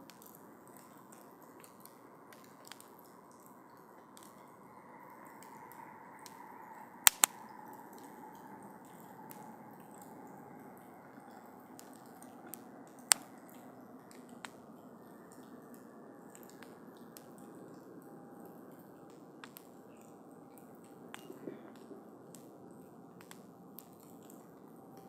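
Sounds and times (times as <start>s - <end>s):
fire crackling and popping: 0.1s - 4.5s, 5.2s - 25.0s
campfire hissing: 2.2s - 15.2s.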